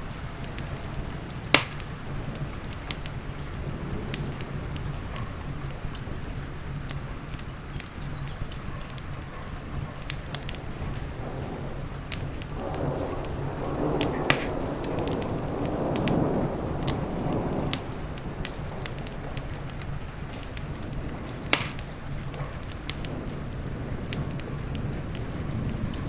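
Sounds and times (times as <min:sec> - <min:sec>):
crackling wood fire: 0:00.0 - 0:26.0
rain: 0:00.0 - 0:26.0
thunder rumbling: 0:00.0 - 0:26.0.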